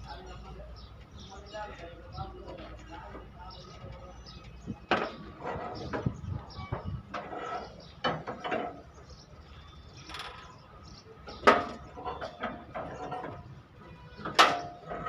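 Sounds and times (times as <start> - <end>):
knocks and clatters: 4.8 - 8.9.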